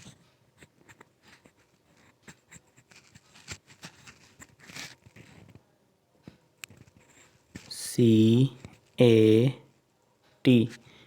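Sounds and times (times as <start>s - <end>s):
scratchy rustles: 0.0s - 5.6s.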